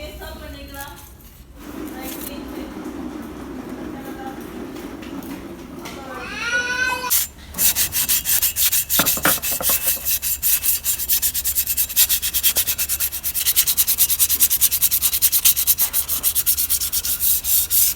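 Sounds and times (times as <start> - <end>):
hand scrubbing or sanding strokes: 6.7 - 17.9.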